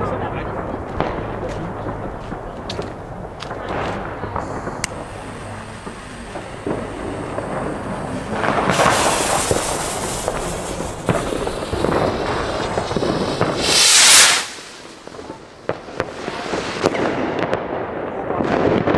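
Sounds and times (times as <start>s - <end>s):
sharp pops: 2.7s - 17.0s
rockets hissing: 2.7s - 17.6s.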